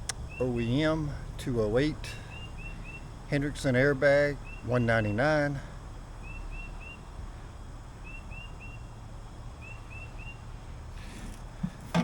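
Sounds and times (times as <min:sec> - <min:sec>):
bird chirping: 0:00.1 - 0:01.0, 0:02.1 - 0:03.2, 0:04.2 - 0:05.4, 0:06.2 - 0:07.1, 0:08.0 - 0:10.6.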